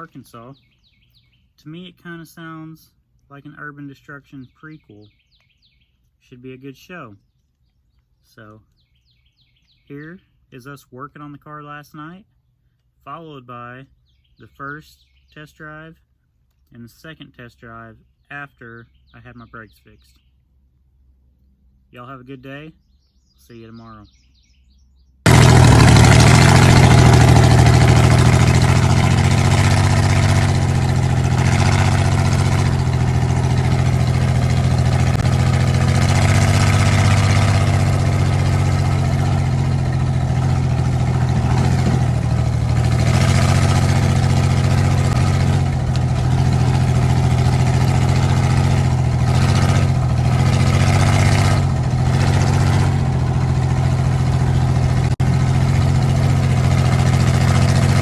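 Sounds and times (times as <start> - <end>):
car engine idling: 25.3 - 58.0.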